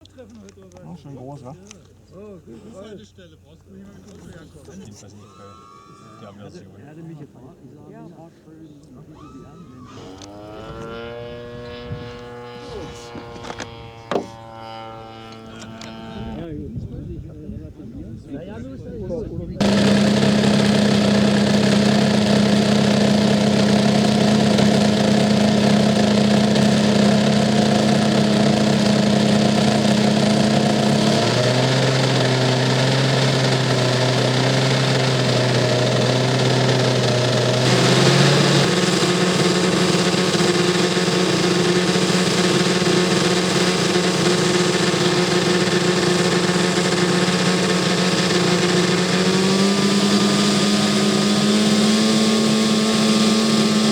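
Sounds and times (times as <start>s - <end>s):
model plane engine running: 4.1s - 6.3s, 9.1s - 16.5s, 19.6s - 53.9s.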